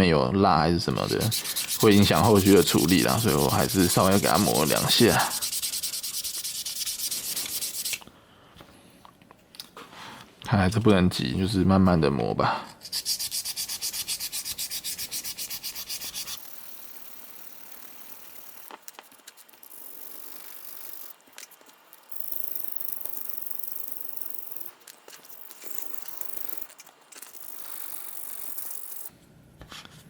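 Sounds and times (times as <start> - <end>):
sandpaper rubbing on plastic: 1.0 - 8.0, 12.8 - 21.7.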